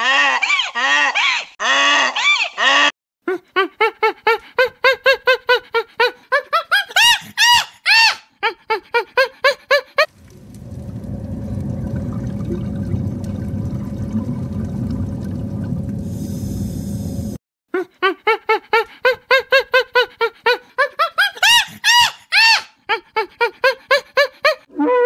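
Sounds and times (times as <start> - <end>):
steady rushing water-like noise: 10.1 - 17.2.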